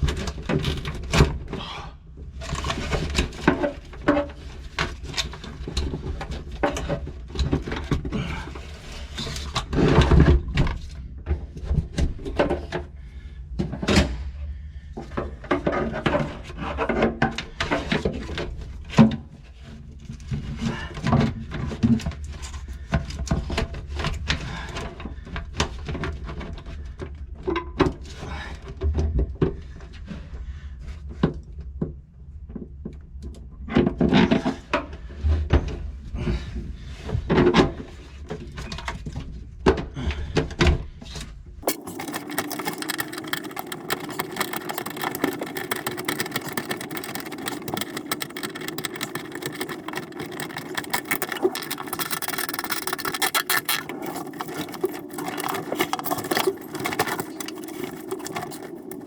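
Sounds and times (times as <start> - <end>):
fast mechanical rattle: 41.6 - 59.0.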